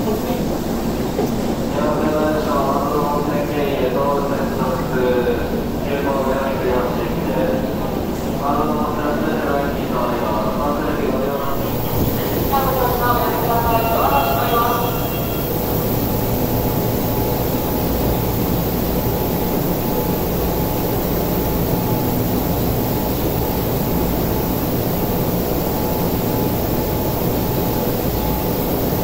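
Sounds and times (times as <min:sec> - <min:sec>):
train equipment hum: 0:00.0 - 0:29.0
faint steady whine: 0:08.5 - 0:29.0.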